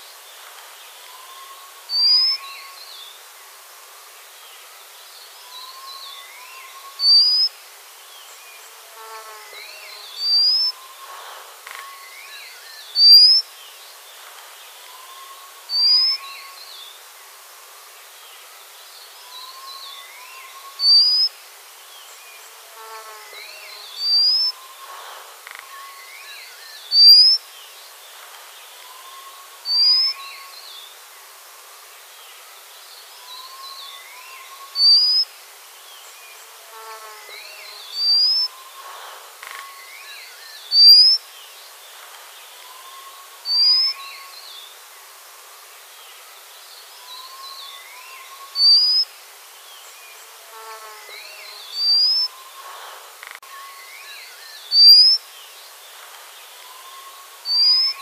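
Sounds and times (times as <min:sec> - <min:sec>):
steady hiss: 0:00.0 - 0:58.0
faint bird chirps: 0:00.9 - 0:03.1, 0:05.4 - 0:07.6, 0:09.2 - 0:13.5, 0:14.7 - 0:16.8, 0:19.2 - 0:21.4, 0:22.9 - 0:27.5, 0:28.6 - 0:30.8, 0:33.1 - 0:35.4, 0:36.0 - 0:49.2, 0:49.8 - 0:55.3, 0:55.9 - 0:58.0
bird whistling thin rising calls: 0:10.2 - 0:11.0, 0:24.0 - 0:24.8, 0:38.0 - 0:39.8, 0:48.3 - 0:49.0, 0:51.8 - 0:52.7.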